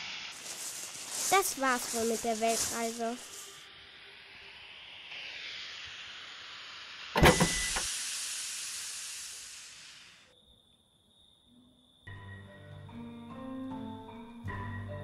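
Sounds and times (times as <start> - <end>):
car engine hissing: 0.0 - 10.2
car hood clunking open: 7.2 - 7.6.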